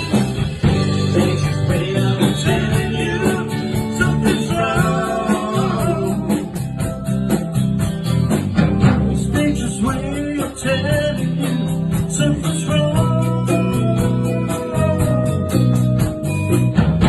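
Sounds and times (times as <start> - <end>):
person singing: 0.0 - 6.8, 9.0 - 15.4
band playing a song: 0.0 - 17.0
guitar: 0.0 - 17.0
steady drum beat: 0.0 - 17.0.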